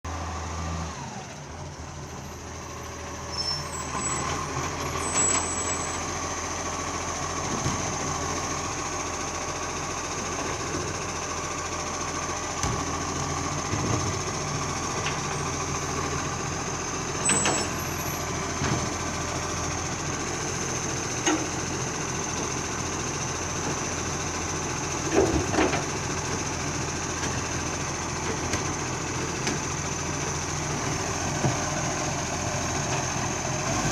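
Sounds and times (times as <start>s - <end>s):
garbage truck engine running: 0.1s - 33.9s.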